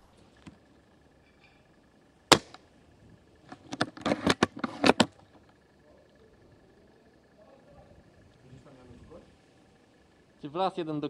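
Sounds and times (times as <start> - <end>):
sharp crack: 2.3 - 2.7
clicks and rattles: 3.4 - 5.6.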